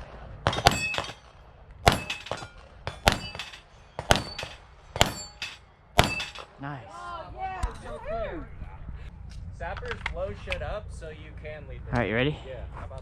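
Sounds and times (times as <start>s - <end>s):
pistol shots: 0.4s - 5.3s, 6.0s - 6.5s
steel target ringing: 0.5s - 1.3s, 1.9s - 6.6s.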